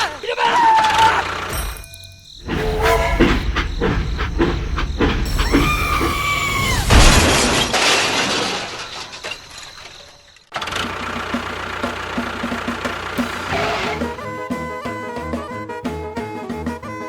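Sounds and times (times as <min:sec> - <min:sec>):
loud crash with shattering: 0:01.5 - 0:10.5
high whistling tone dropping: 0:01.8 - 0:07.6.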